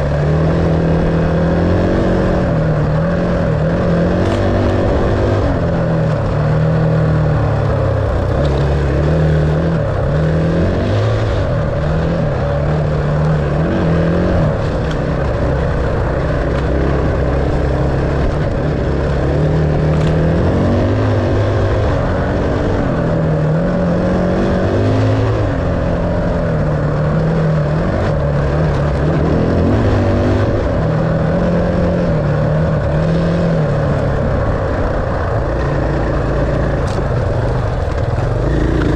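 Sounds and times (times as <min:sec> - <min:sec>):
dirt bike engine revving: 0:00.0 - 0:21.8, 0:35.6 - 0:38.9.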